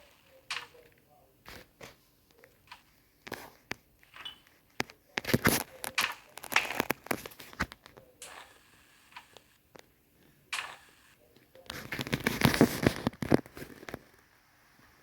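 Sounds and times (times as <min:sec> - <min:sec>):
small objects clicking and rustling: 0:00.0 - 0:09.9.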